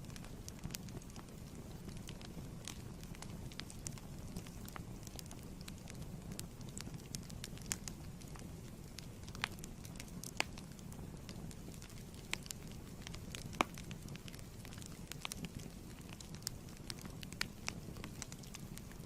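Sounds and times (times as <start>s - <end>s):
low fire rumble: 0.0s - 19.0s
wood fire crackling and popping: 0.0s - 19.0s.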